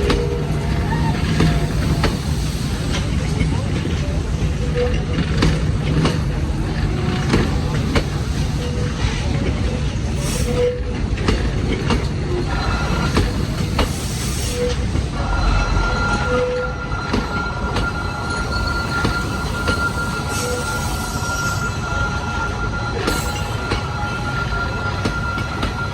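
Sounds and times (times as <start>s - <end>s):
high wheel squeal: 0.0s - 10.9s, 12.4s - 25.9s
train carriages rumbling: 0.0s - 25.9s.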